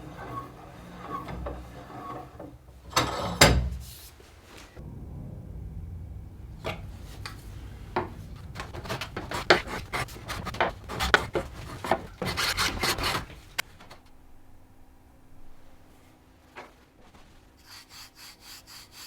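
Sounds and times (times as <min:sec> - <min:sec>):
scraping strokes on wood: 0:00.0 - 0:04.2, 0:06.6 - 0:13.6.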